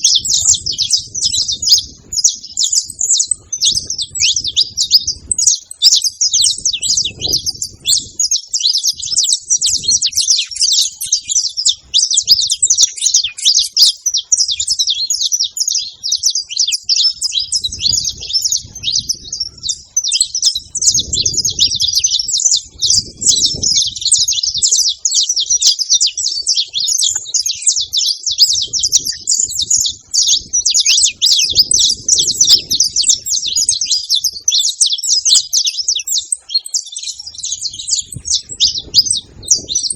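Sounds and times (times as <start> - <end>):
finches chirping: 0.0 - 39.9
soft low rumbles: 17.3 - 24.1.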